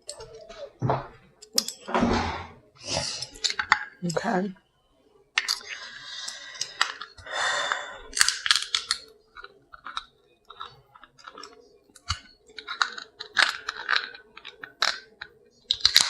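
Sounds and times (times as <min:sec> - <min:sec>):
shell cracking: 0:05.3 - 0:16.0.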